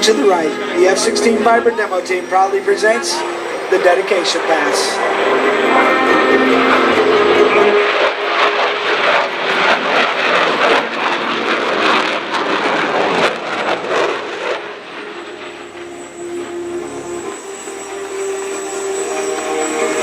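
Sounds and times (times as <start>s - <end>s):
faint music: 0.0s - 10.1s
jet engine roaring by: 0.0s - 20.0s.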